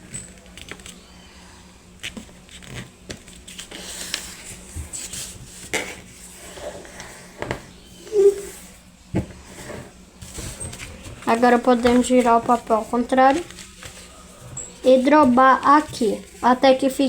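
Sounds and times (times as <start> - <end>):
paper rustling and crackling: 2.0 - 6.2, 10.2 - 17.0.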